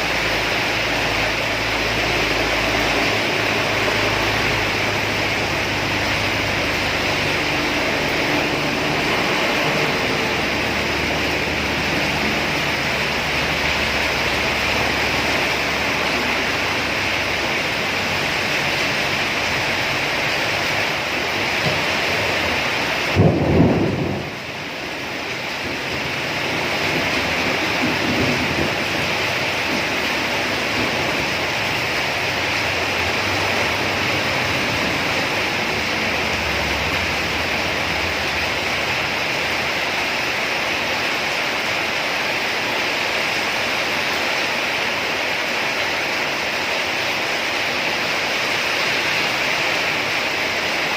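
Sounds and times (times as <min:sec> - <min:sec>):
heavy rain: 0:00.0 - 0:50.9
loud low thump: 0:23.2 - 0:24.3.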